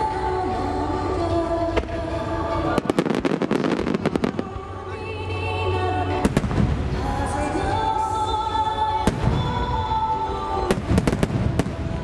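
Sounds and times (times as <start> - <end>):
fireworks bangs: 10.7 - 12.0.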